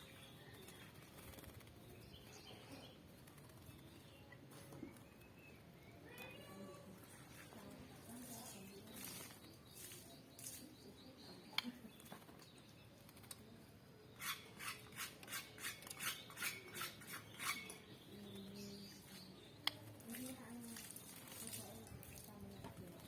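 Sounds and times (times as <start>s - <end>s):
bird splashing in water: 20.0s - 22.5s.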